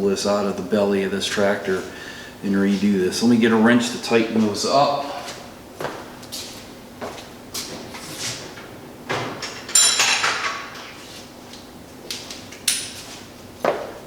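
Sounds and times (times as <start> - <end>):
metal hand tools clinking: 9.7 - 10.6.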